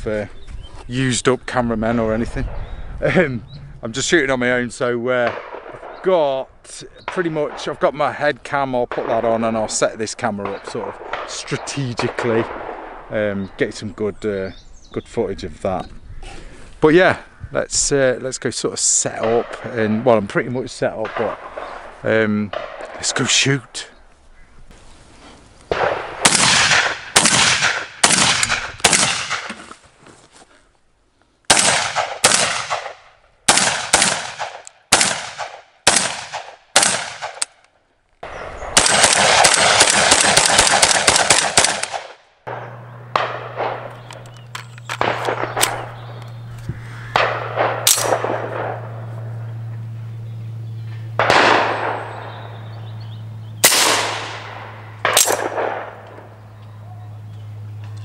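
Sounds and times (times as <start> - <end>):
low hum: 1.6 - 7.9, 38.2 - 58.0
gunshots: 5.1 - 6.3, 7.0 - 8.2, 8.8 - 9.6, 10.3 - 13.2, 20.9 - 23.4, 25.7 - 29.7, 31.5 - 37.6, 38.2 - 44.3, 44.9 - 46.3, 47.1 - 49.2, 51.2 - 52.5, 53.6 - 56.3.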